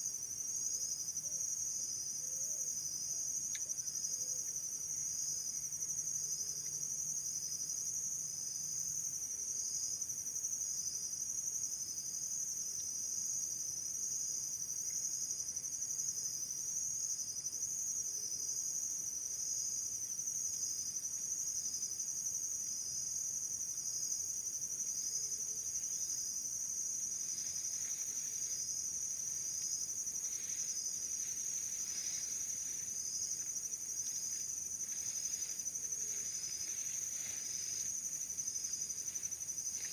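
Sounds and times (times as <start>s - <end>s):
insects trilling: 17.6s - 39.9s.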